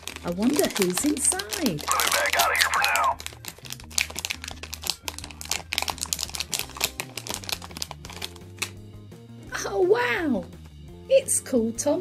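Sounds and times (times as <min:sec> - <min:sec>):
foil packet crinkling: 0:00.0 - 0:08.8.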